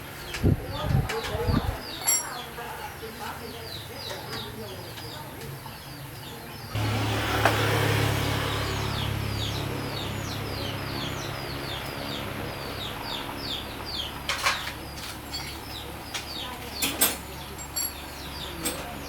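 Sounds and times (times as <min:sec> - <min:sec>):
small birds chirping: 0:00.0 - 0:19.0
motor humming: 0:06.8 - 0:14.3.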